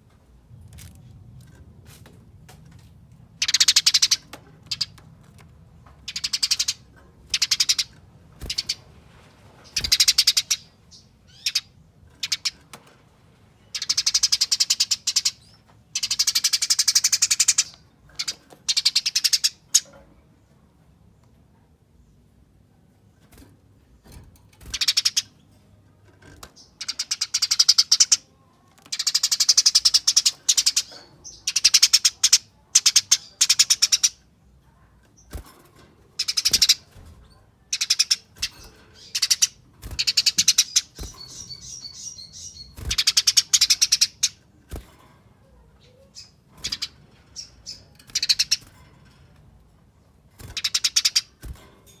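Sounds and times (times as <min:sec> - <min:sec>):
sparrow chattering: 0:03.4 - 0:05.0, 0:06.0 - 0:08.8, 0:09.6 - 0:12.6, 0:13.7 - 0:19.9, 0:24.6 - 0:25.4, 0:26.6 - 0:28.3, 0:28.9 - 0:34.3, 0:36.2 - 0:37.0, 0:37.7 - 0:44.6, 0:45.5 - 0:48.7, 0:50.4 - 0:51.6.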